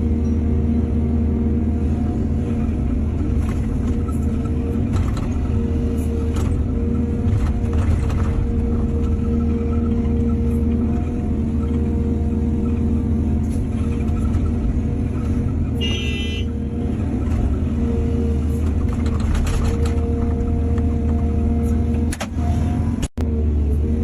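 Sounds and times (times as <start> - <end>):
excavator diesel engine running: 0.0 - 24.0
clicks and clatter: 18.6 - 20.1.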